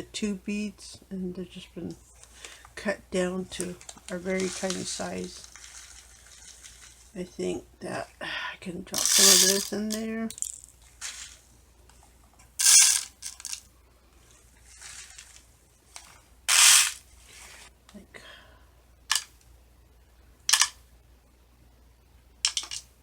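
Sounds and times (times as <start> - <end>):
beads clattering into noisemaker: 3.5 - 7.2, 9.0 - 11.5, 12.6 - 13.7, 16.5 - 17.0, 22.4 - 22.9.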